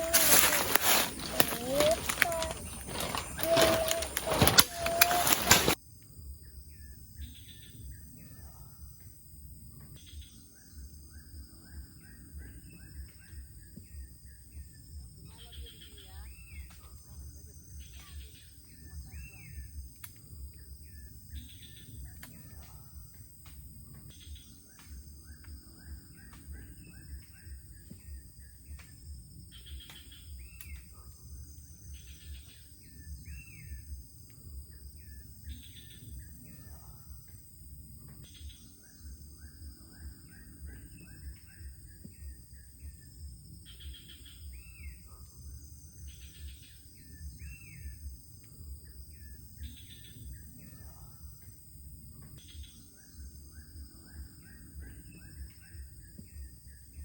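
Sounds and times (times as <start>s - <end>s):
birds chirping: 0.0s - 5.8s
insects droning: 0.0s - 57.0s.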